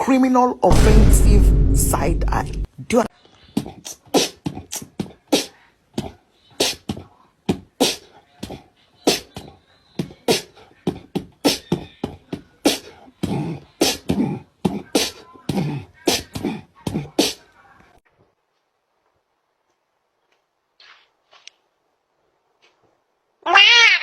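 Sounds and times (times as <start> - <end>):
beatboxing clicks and puffs: 3.6 - 9.3.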